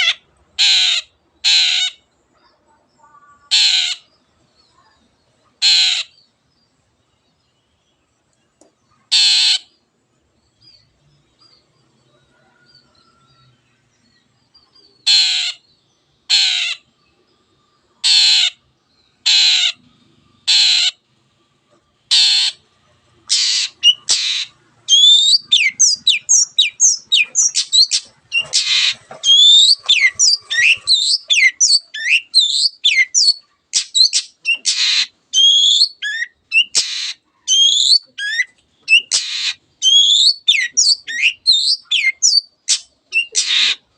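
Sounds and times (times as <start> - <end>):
shrike harsh raspy calls: 0.0 - 2.0, 3.4 - 4.1, 5.6 - 6.2, 9.1 - 9.8, 15.0 - 15.6, 16.3 - 16.9, 18.0 - 18.6, 19.2 - 21.1, 22.1 - 43.9.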